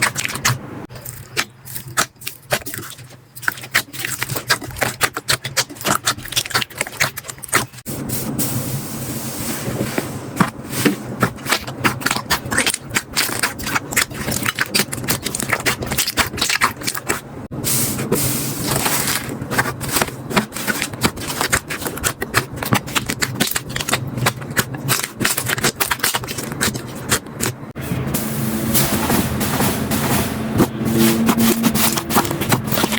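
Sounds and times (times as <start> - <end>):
slime clicking and crackling: 0.0 - 7.9, 11.2 - 17.3, 18.7 - 27.7.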